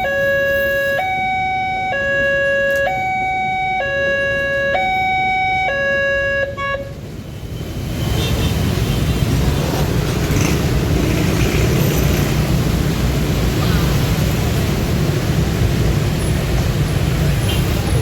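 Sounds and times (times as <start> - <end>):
two-tone crossing alarm: 0.0 - 6.8
road traffic noise: 0.0 - 18.0.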